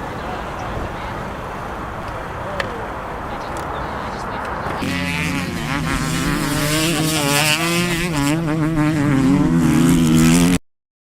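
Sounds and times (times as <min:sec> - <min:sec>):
motorbike engine revving: 0:04.8 - 0:10.6.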